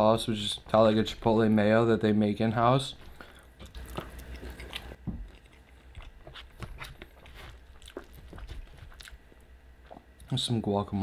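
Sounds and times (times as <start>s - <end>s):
person chewing food: 3.0s - 10.3s.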